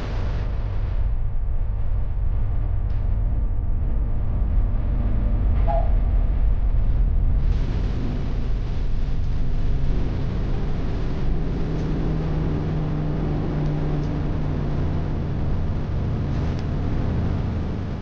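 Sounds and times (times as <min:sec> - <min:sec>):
engine humming tone: 0:02.9 - 0:06.5, 0:08.7 - 0:18.0
jet engines rumbling: 0:04.8 - 0:18.0.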